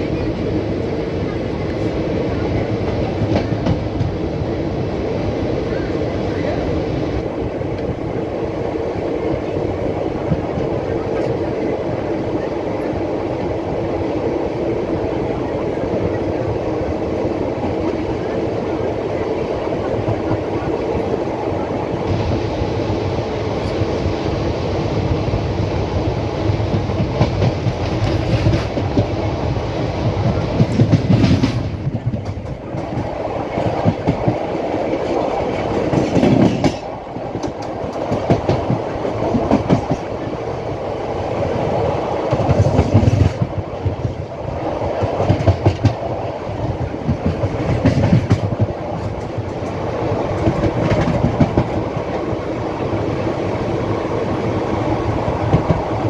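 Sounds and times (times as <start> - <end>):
train wheels clickety-clack: 1.6 - 4.4, 10.2 - 11.7, 26.4 - 40.4, 42.2 - 53.3, 54.9 - 56.0.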